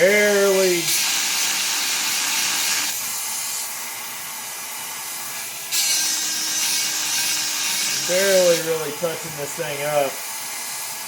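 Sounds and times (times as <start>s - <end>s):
chainsaw sharpener grinding: 5.7s - 10.2s.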